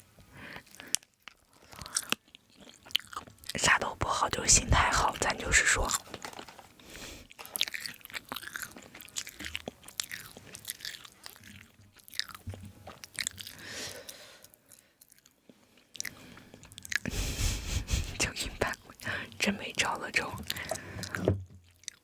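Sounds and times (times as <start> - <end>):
person chewing food: 0.2 - 4.0, 4.8 - 19.4, 20.4 - 22.0.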